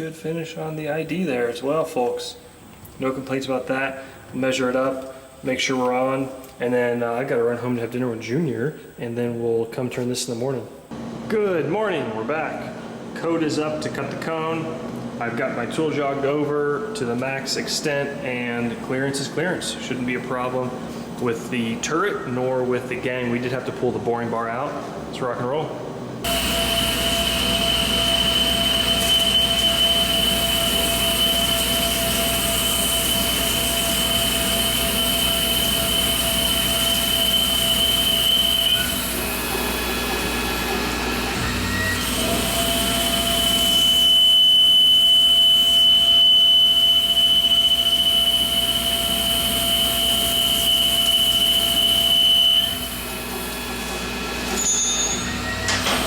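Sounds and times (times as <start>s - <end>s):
high whine of spindle drive: 26.2s - 56.0s
lathe machining metal: 26.3s - 56.0s.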